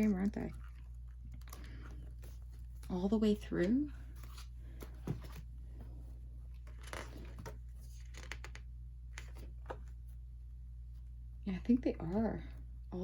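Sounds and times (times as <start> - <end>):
steady low hum: 0.0 - 13.0
book pages turning: 1.4 - 5.6.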